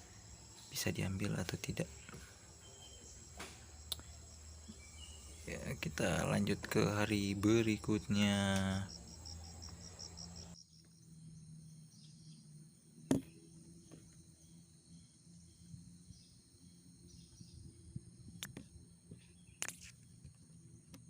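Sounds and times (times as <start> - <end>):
insects chirring: 0.0 - 21.0
sharp knock: 13.1 - 13.3.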